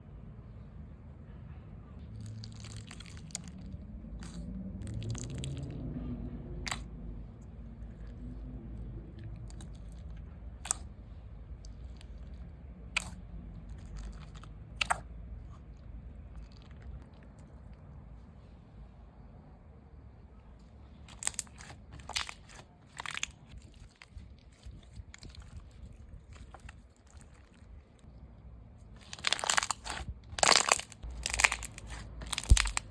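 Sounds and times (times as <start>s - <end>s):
slime squeezed by hand: 2.2s - 5.8s, 12.9s - 13.2s, 21.1s - 27.6s, 29.0s - 32.9s.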